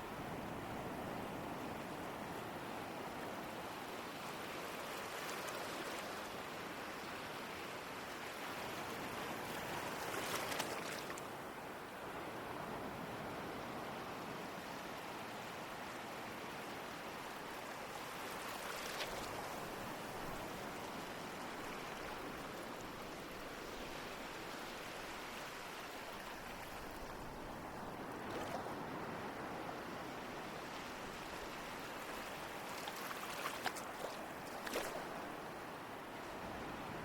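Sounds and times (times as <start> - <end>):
waves splashing: 18.3 - 37.0.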